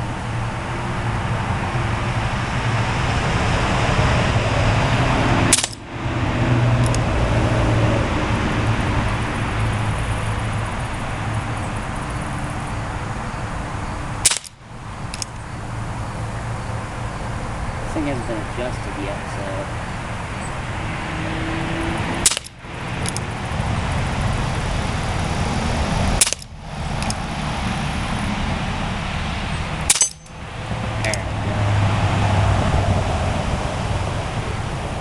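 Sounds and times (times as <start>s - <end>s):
distant road traffic hum: 0.0s - 35.0s
air gun shots: 5.5s - 5.8s, 14.2s - 14.6s, 22.2s - 22.6s, 26.2s - 26.5s, 29.9s - 30.3s.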